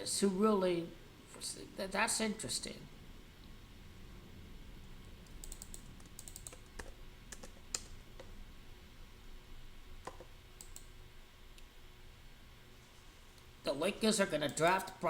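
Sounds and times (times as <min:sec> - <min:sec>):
faint keyboard typing: 0:04.7 - 0:08.4, 0:10.0 - 0:11.7.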